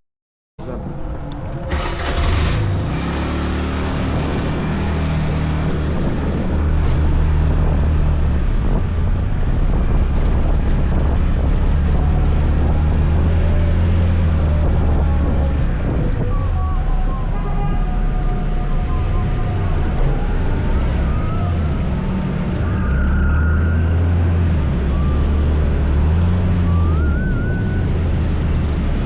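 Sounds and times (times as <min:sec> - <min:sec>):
scooter engine humming: 0:00.6 - 0:07.4
wind buffeting microphone: 0:03.9 - 0:16.6.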